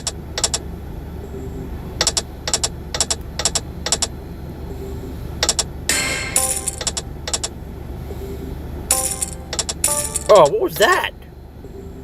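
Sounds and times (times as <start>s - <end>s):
sharp double clicks: 0.0s - 0.6s, 2.0s - 4.1s, 5.4s - 7.5s, 8.9s - 10.4s
bright chiming burst: 5.9s - 7.0s, 8.9s - 10.5s.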